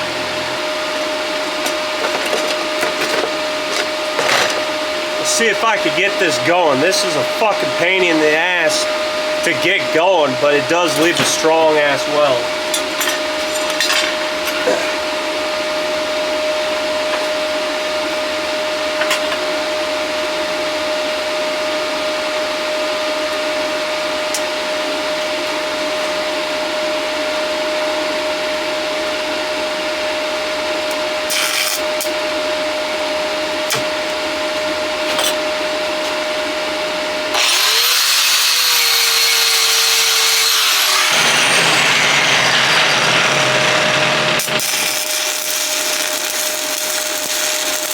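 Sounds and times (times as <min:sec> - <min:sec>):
welding arc hiss and crackle: 0:31.3 - 0:32.2, 0:44.4 - 0:47.9
power tool whine: 0:36.8 - 0:47.9.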